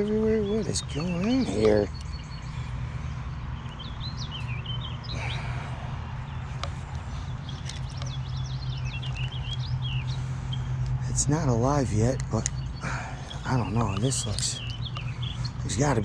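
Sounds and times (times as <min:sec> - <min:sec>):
birds chirping: 0:00.0 - 0:16.0
steady low hum: 0:00.0 - 0:16.0
sharp clicks: 0:06.5 - 0:10.2, 0:12.1 - 0:15.6.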